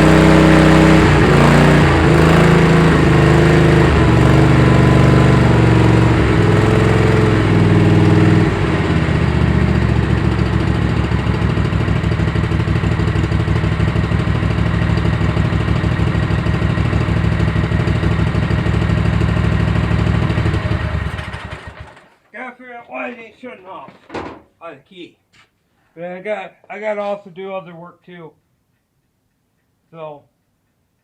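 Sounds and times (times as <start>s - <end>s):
engine running and idling: 0.0s - 22.2s.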